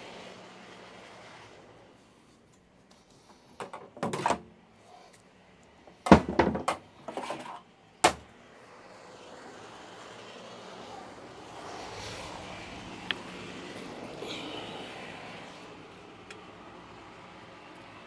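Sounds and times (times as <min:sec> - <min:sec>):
tools knocking and clattering: 0:03.6 - 0:04.5, 0:06.0 - 0:08.2.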